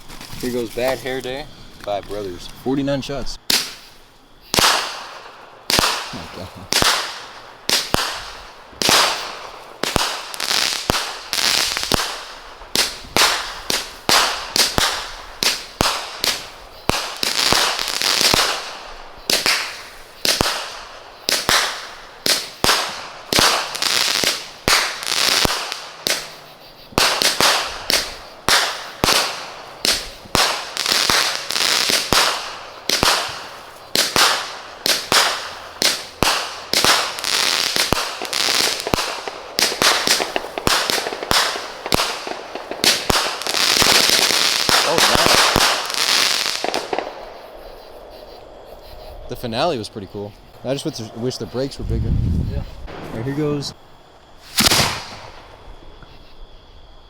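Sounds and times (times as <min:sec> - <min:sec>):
fireworks firing sharp reports: 0:02.3 - 0:48.4, 0:49.2 - 0:53.8, 0:54.4 - 0:55.6
hiss of shells breaking: 0:54.4 - 0:55.2.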